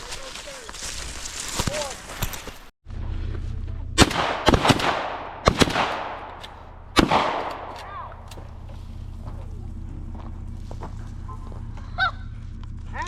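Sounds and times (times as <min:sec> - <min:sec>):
echoing gunshots: 0:04.0 - 0:08.1.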